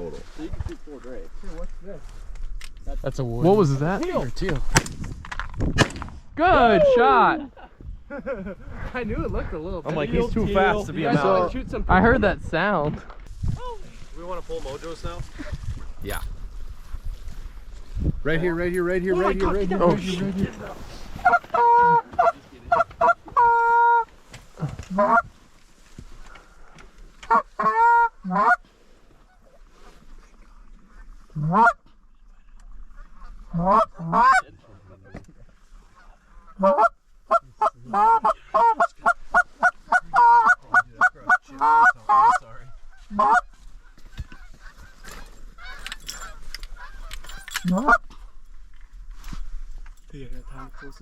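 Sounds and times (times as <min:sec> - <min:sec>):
geese honking: 0:21.2 - 0:24.1, 0:24.9 - 0:25.3, 0:27.3 - 0:28.6, 0:31.4 - 0:31.8, 0:33.2 - 0:34.4, 0:36.0 - 0:48.0.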